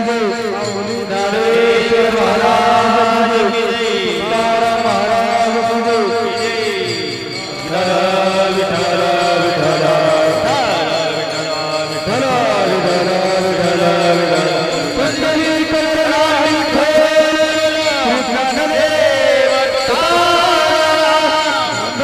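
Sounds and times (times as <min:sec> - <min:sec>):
person singing devotional song: 0:00.0 - 0:22.0.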